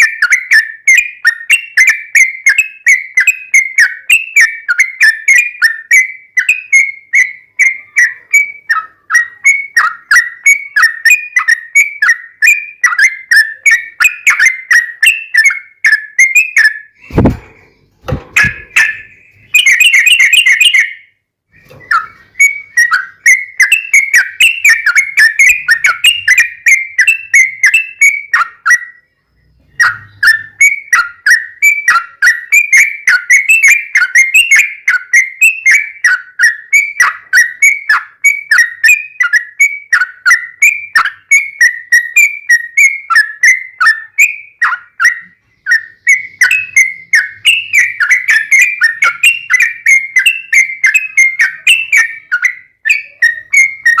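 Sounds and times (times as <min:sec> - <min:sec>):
bulbul chattering song: 0:00.0 - 0:54.0.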